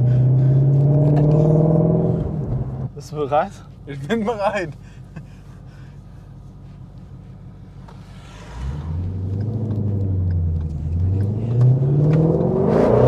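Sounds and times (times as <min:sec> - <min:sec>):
car engine accelerating hard: 0:00.0 - 0:02.9, 0:07.2 - 0:13.0.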